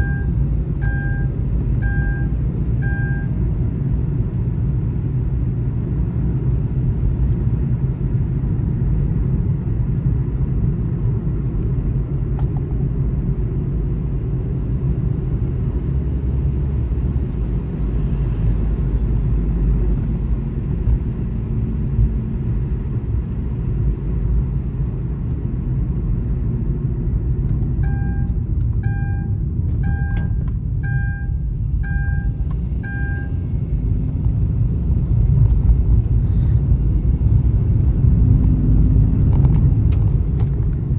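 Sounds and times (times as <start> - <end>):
short electronic beeps: 0.0 - 3.4, 27.8 - 33.4
car road and tyre noise: 0.0 - 40.9.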